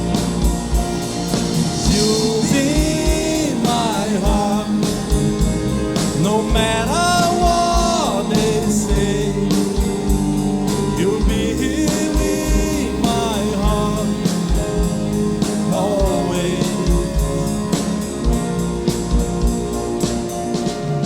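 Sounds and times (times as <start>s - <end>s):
pop-rock band playing: 0.0s - 21.0s
person singing: 1.8s - 18.4s.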